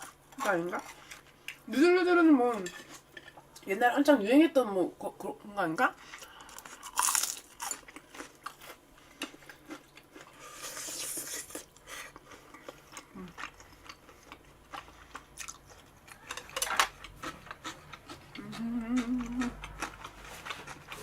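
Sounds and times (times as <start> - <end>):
person chewing and biting food: 6.5 - 21.0.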